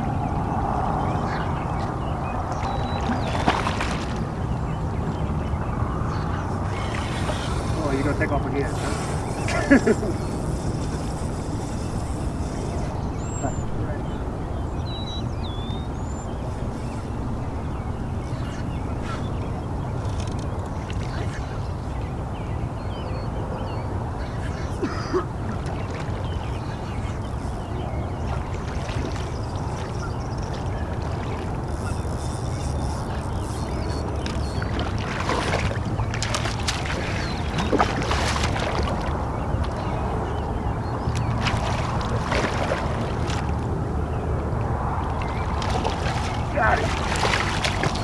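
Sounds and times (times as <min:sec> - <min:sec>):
wind rumbling on microphone: 0:00.0 - 0:48.0
fish thrashing in water: 0:02.7 - 0:04.5, 0:24.9 - 0:40.2, 0:41.0 - 0:43.9, 0:44.7 - 0:48.0.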